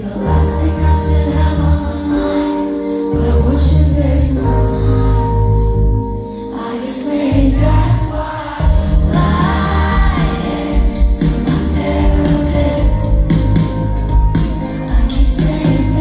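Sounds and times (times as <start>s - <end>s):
woman singing: 0.0s - 5.8s, 6.5s - 13.7s, 14.8s - 16.0s
band with bass and drums: 7.3s - 16.0s.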